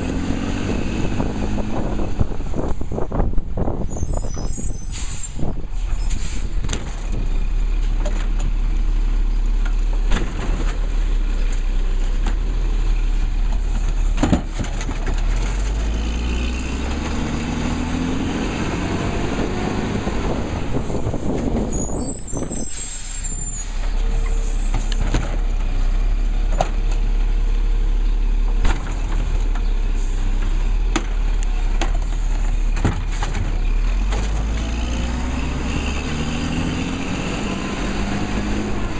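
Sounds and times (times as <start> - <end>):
high squeal: 3.8 - 6.3, 21.7 - 24.7
knocks and clanks: 9.6 - 11.0, 13.5 - 15.9, 30.9 - 34.7.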